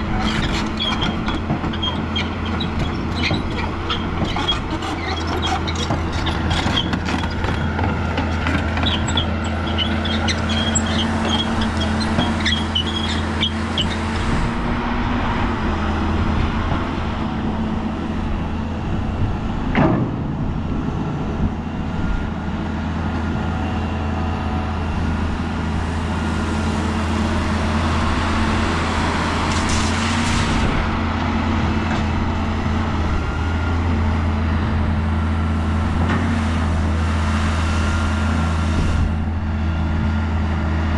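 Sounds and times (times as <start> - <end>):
heavy diesel engine running: 0.0 - 40.9
short squeal: 0.1 - 7.7, 8.8 - 14.1.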